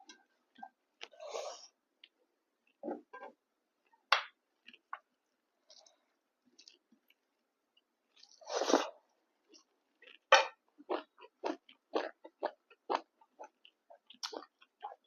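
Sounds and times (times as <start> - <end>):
chewing with wet smacks: 10.9 - 15.0.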